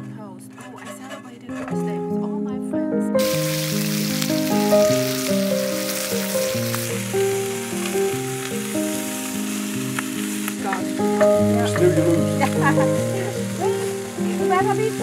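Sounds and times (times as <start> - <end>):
background music: 0.0 - 15.0
food sizzling in a skillet: 3.2 - 15.0.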